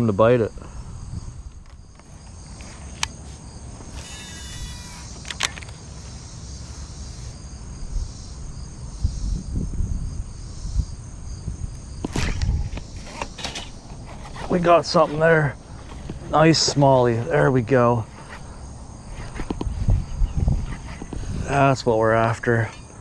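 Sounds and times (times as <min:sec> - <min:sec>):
insect chorus chirring: 0:00.0 - 0:23.0
sharp clicks: 0:03.8 - 0:05.8.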